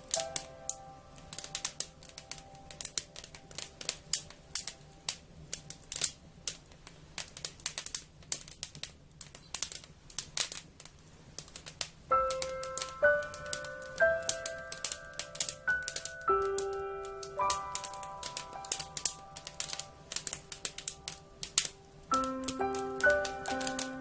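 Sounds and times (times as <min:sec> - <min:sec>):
soft background music: 0:00.0 - 0:06.1, 0:12.1 - 0:24.0
wood fire crackling: 0:00.0 - 0:24.0.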